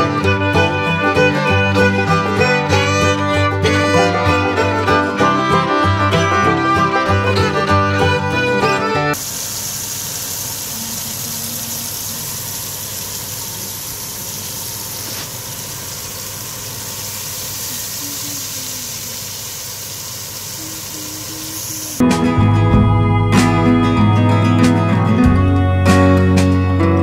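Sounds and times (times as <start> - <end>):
chicken sizzling in hot oil: 9.2 - 22.0.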